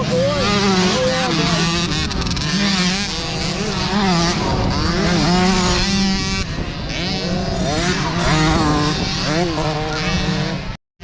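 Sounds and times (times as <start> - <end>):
dirt bike engines revving: 0.0 - 10.8.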